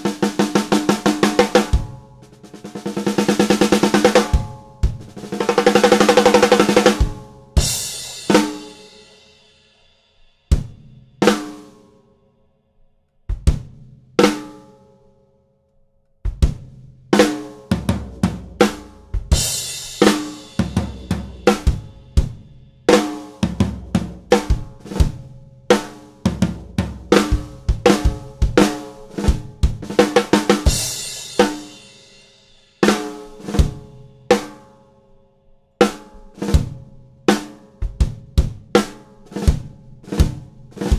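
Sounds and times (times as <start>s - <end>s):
bass drum: 0.4s - 8.7s, 10.5s - 11.0s, 13.3s - 13.9s, 16.3s - 17.0s, 17.7s - 22.7s, 26.3s - 31.2s, 37.8s - 38.8s.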